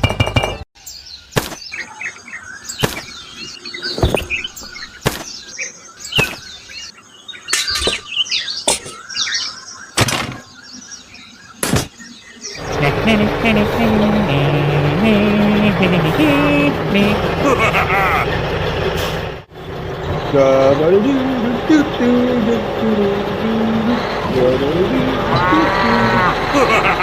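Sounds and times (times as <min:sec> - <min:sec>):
small birds chirping: 0:00.8 - 0:15.8.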